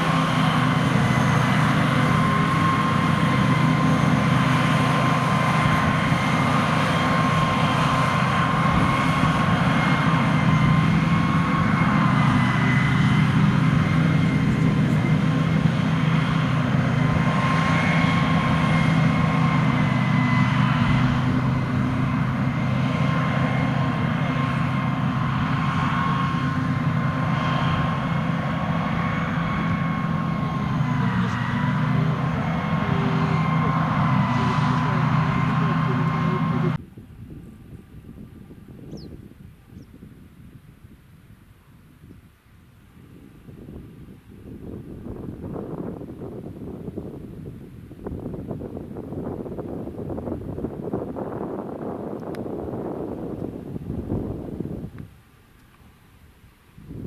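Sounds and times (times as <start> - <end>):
high-pitched whine: 0.0 - 36.8
diesel engine rumble: 0.0 - 57.0.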